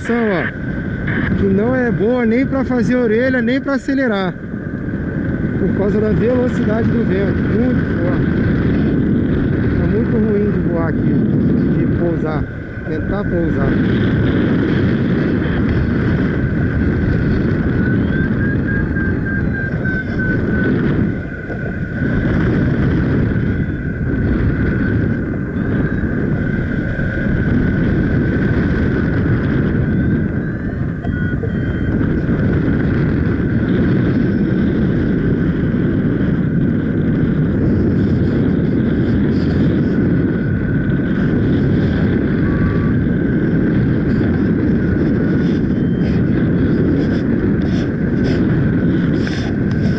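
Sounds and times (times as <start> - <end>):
thin high tone beeping: 0.0 - 4.2, 17.6 - 22.0, 29.8 - 32.4, 45.6 - 46.3
strong wind buffeting microphone: 0.0 - 49.9.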